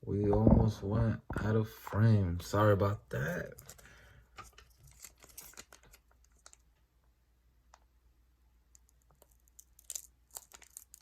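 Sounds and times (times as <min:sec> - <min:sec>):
foil card pack clicks and rustling: 0:04.4 - 0:06.6.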